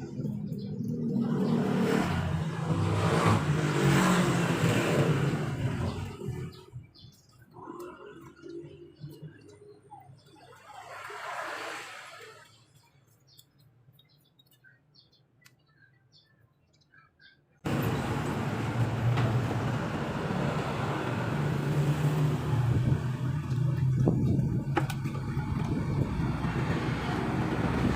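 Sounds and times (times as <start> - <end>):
truck engine running: 17.7 - 27.9.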